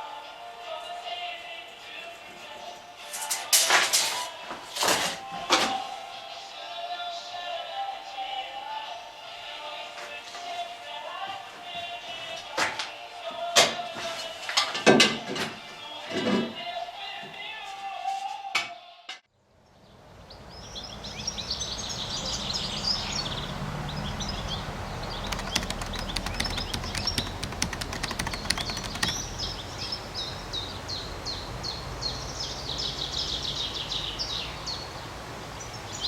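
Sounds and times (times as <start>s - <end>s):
birds chirping: 19.8s - 34.9s
fast rattle of clicks: 25.3s - 29.2s.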